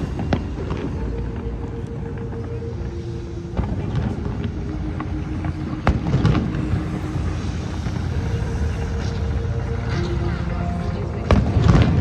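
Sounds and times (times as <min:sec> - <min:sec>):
steady low rumble: 0:00.0 - 0:12.0
fireworks bangs and crackles: 0:03.5 - 0:12.0.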